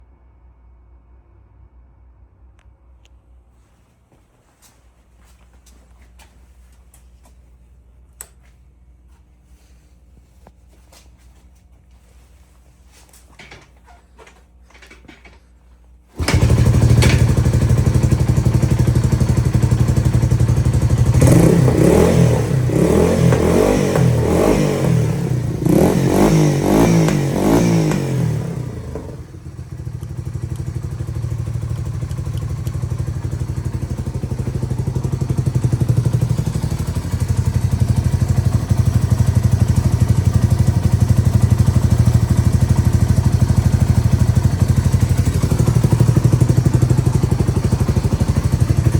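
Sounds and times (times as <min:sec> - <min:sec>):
motorcycle engine revving and idling: 0:16.2 - 0:48.9.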